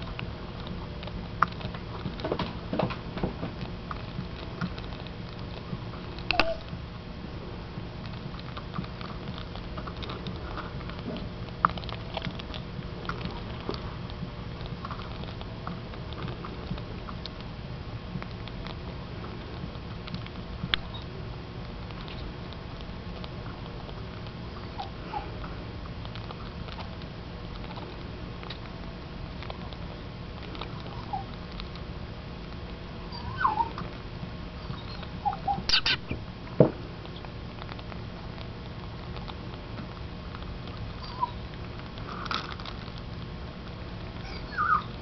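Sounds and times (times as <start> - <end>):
steady low hum: 0.0 - 45.0
faint bird squeaks: 6.3 - 6.6, 33.1 - 33.8, 34.6 - 36.2, 41.0 - 41.4, 44.2 - 44.9
budgie chirp: 34.6 - 36.2
beak cracking seeds: 34.9 - 40.8, 41.5 - 43.3.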